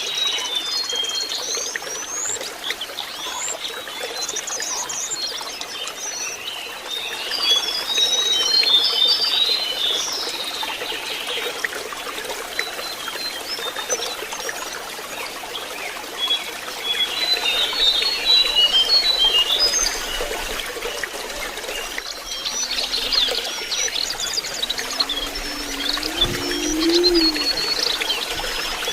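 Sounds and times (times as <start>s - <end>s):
running water trickling: 0.0s - 28.9s
bird twittering song: 21.7s - 28.9s.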